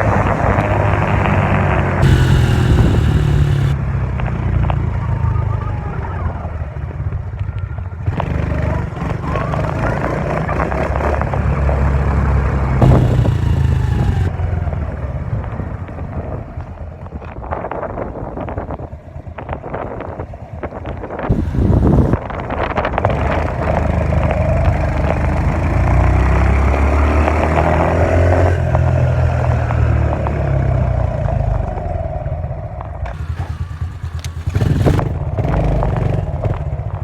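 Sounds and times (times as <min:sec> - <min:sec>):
dirt bike engine revving: 0:02.0 - 0:03.8, 0:12.8 - 0:14.3, 0:33.0 - 0:36.4.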